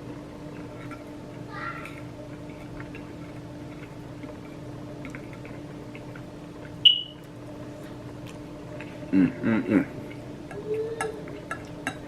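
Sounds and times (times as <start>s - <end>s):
quiet eating sounds: 0.0s - 12.0s
steady low hum: 0.0s - 12.0s
utensil clinking against dish: 11.0s - 12.0s.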